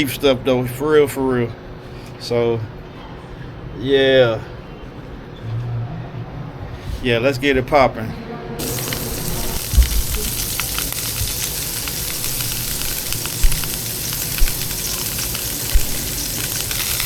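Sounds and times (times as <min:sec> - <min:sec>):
meat sizzling on a grill: 0:08.6 - 0:17.0
dull low thumps: 0:08.7 - 0:14.8.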